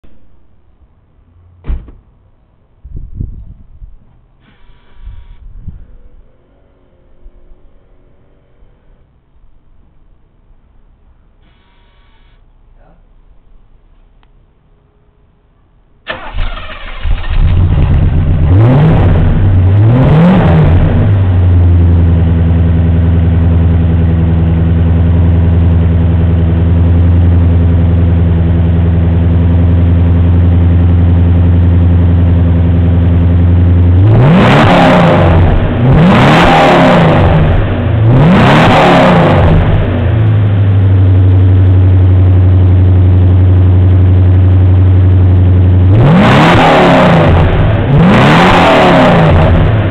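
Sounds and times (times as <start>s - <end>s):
car engine idling: 15.9s - 34.4s, 39.3s - 46.1s
car engine starting: 16.0s - 49.9s
car engine revving: 16.1s - 49.9s.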